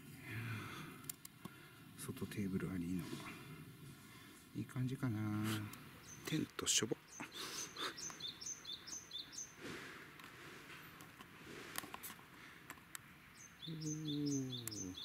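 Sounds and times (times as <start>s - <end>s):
songbird chirping: 1.4s - 15.0s
faint clicks: 14.6s - 14.9s.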